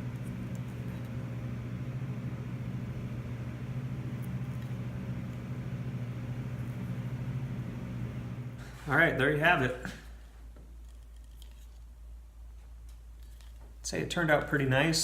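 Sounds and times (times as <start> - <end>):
electric motor humming: 0.0 - 8.6.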